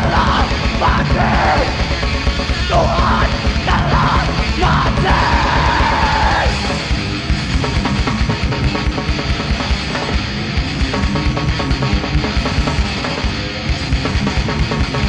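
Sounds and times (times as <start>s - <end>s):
harsh yelled vocals: 0.0s - 6.9s
fast drumming: 0.0s - 15.0s
metal band playing: 0.0s - 15.0s.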